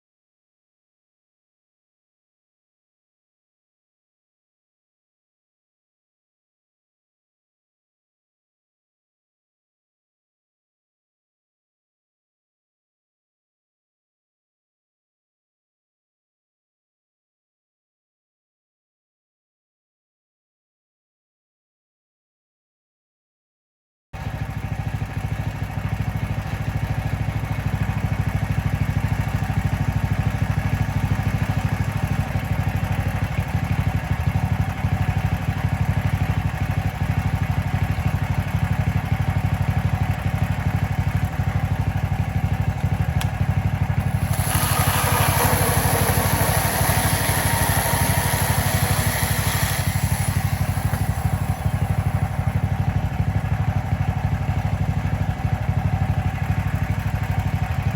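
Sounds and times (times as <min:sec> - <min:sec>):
sawmill engine running: 0:24.2 - 0:57.9
band blade cutting log: 0:44.0 - 0:52.5.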